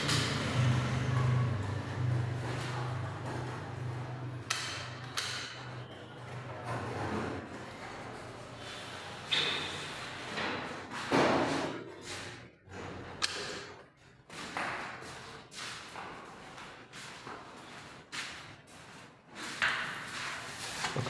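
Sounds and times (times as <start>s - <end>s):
broom sweeping floor: 16.8s - 21.0s.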